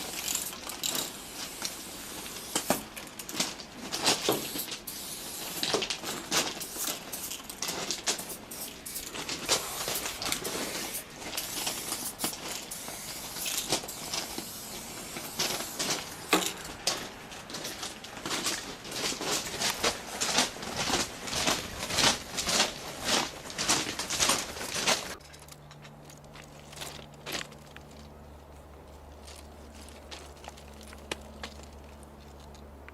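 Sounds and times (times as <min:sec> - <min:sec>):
spray paint cans hissing: 0:00.0 - 0:16.9
steady low hum: 0:00.0 - 0:32.9.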